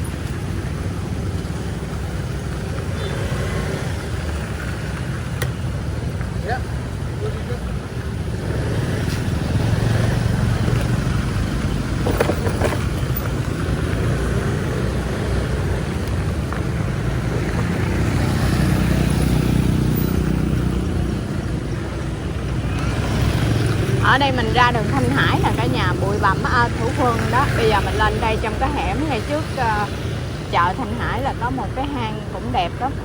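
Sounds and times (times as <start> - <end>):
motorbike engine: 0.0 - 33.0
street traffic: 0.0 - 33.0
engine passing close: 7.3 - 33.0.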